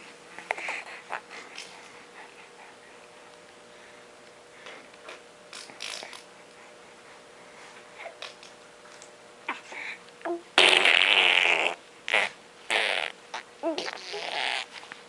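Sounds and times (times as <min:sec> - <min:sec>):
fart-like noises: 0:10.6 - 0:14.8.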